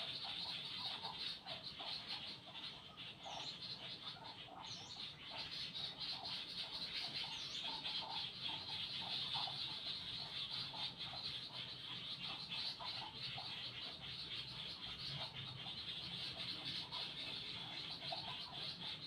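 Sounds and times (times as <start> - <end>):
birds calling: 0.0 - 19.0.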